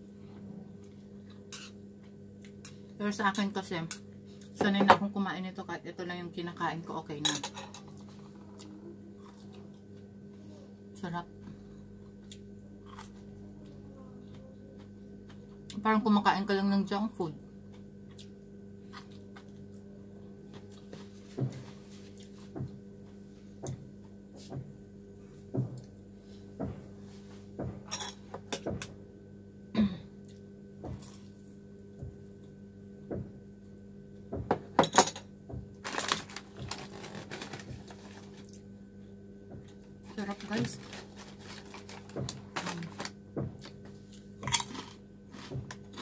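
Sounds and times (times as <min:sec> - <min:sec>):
steady low hum: 0:00.0 - 0:46.0
plastic food packet crinkling: 0:35.8 - 0:38.6, 0:40.2 - 0:43.8.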